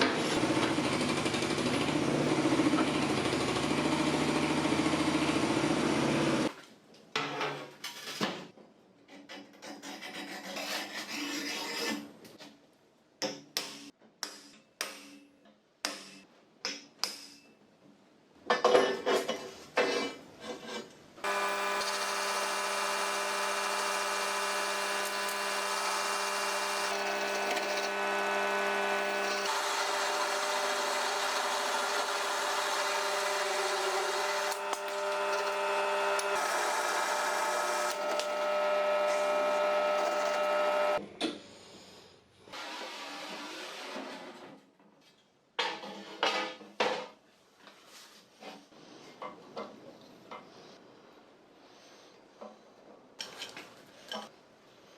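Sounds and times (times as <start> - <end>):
power tool motor humming: 21.2 - 41.0.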